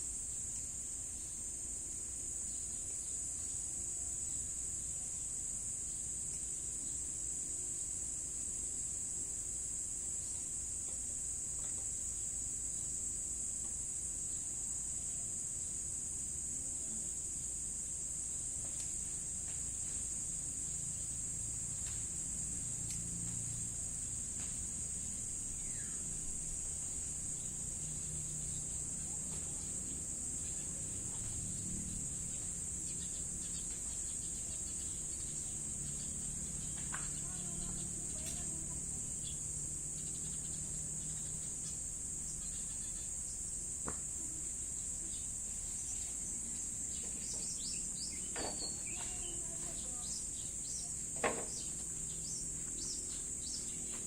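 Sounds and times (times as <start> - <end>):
insect chorus: 0.0 - 54.0
bird chirps: 46.9 - 54.0.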